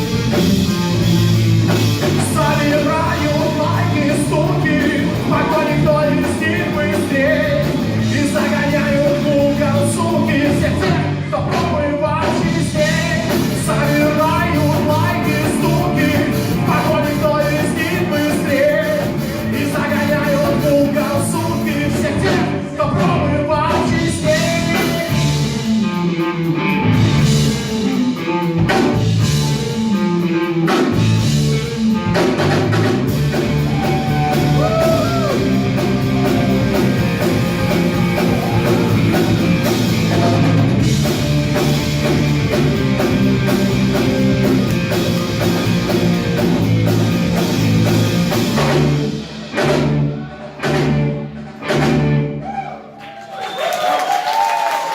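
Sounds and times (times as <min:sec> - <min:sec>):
electric guitars: 0:00.0 - 0:52.6
drum kit: 0:00.0 - 0:52.9
person singing: 0:02.0 - 0:26.6, 0:31.7 - 0:40.8.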